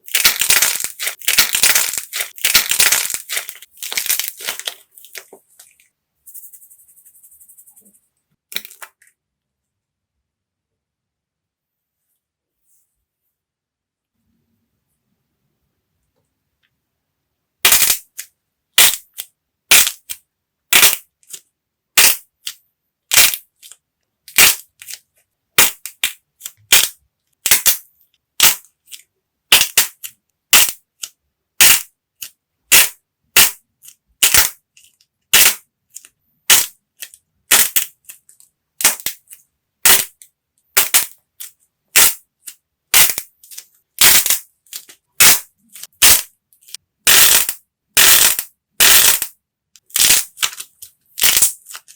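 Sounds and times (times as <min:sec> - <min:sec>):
dried clay cracking and crunching: 0:00.0 - 0:05.8.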